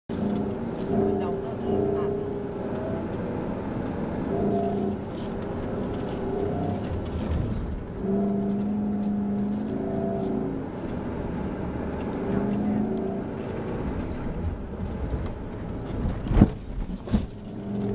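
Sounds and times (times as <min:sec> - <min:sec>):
low rumble of tyres: 0:00.0 - 0:17.9
engine revving hard: 0:00.1 - 0:03.6, 0:04.2 - 0:14.1.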